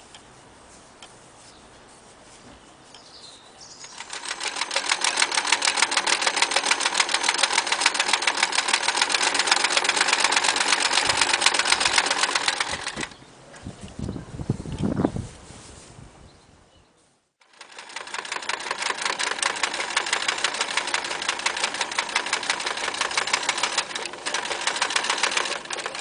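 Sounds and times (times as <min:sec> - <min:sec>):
sewing machine clattering: 0:03.9 - 0:13.2, 0:17.4 - 0:26.0.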